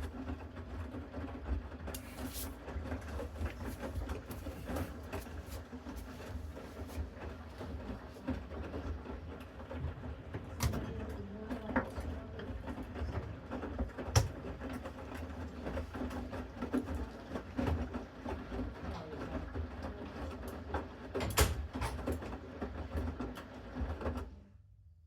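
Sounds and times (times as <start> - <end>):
washing machine drum humming: 0.0 - 24.2
washing machine clicks and knocks: 9.7 - 15.2, 20.9 - 24.2.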